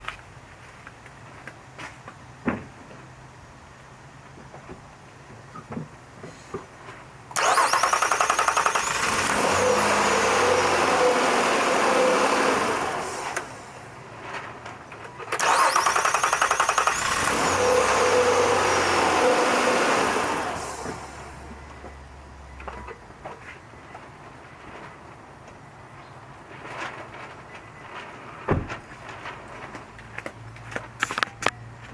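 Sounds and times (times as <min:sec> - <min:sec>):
car starter cranking: 0:07.3 - 0:13.9, 0:15.3 - 0:21.6
car engine running: 0:07.4 - 0:13.9, 0:15.4 - 0:21.6.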